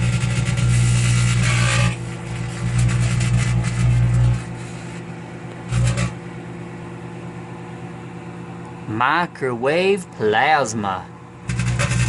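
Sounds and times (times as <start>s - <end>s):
plasma buzzing in microwave: 0.0s - 9.0s, 10.8s - 12.0s.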